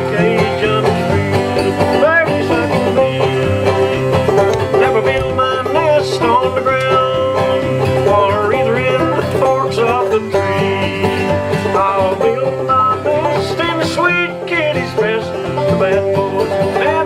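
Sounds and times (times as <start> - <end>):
acoustic guitar bass and chords: 0.0 - 17.0
banjo picking melody: 0.0 - 17.0.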